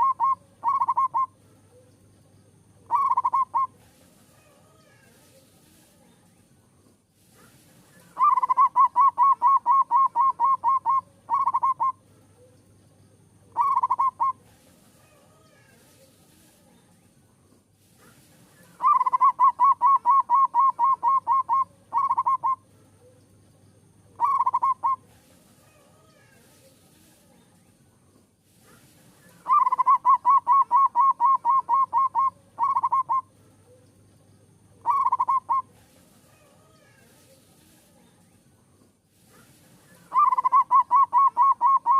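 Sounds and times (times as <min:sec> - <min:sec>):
dove cooing: 0:00.0 - 0:01.8, 0:02.8 - 0:03.8, 0:08.1 - 0:12.5, 0:13.5 - 0:14.4, 0:18.7 - 0:23.1, 0:24.2 - 0:25.8, 0:29.3 - 0:33.3, 0:34.8 - 0:37.0, 0:40.0 - 0:41.9.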